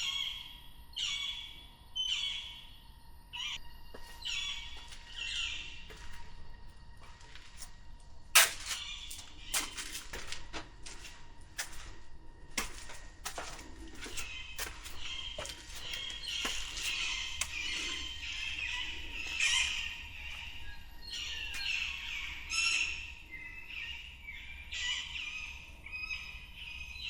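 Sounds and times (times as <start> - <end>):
birds calling: 3.4 - 27.0
footsteps walking: 3.8 - 22.4.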